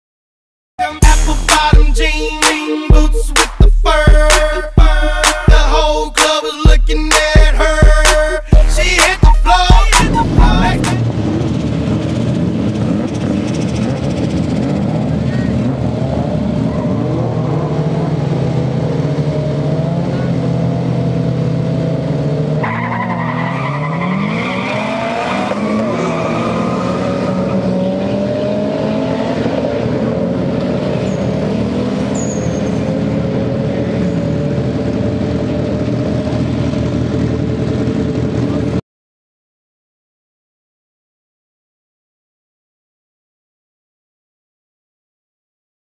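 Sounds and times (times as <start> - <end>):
racing car engines revving: 6.9 - 38.8.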